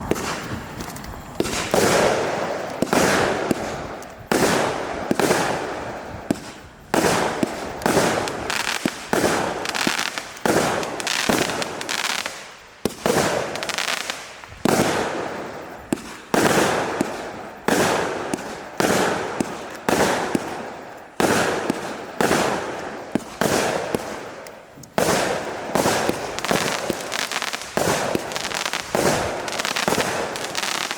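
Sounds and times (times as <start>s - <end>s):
fireworks cake firing bangs: 0.0s - 30.9s.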